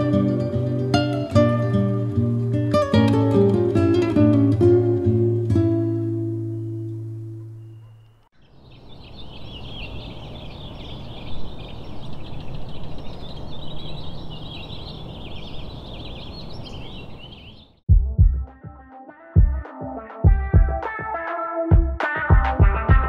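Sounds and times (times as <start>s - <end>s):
strummed acoustic guitar: 0.0s - 6.6s
birds chirping and singing: 6.5s - 17.8s
music beat: 17.9s - 23.0s.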